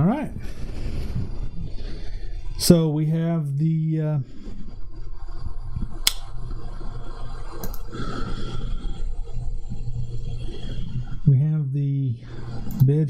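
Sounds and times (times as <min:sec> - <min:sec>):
cooling fans whirring: 0:00.0 - 0:13.0
sharp clicks: 0:06.0 - 0:06.3.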